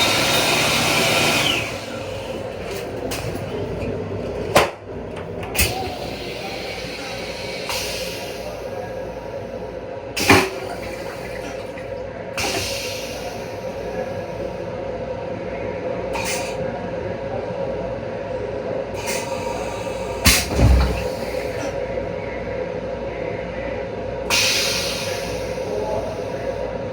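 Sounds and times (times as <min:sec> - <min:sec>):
train hum: 0:00.0 - 0:16.3
low thump: 0:20.3 - 0:21.2.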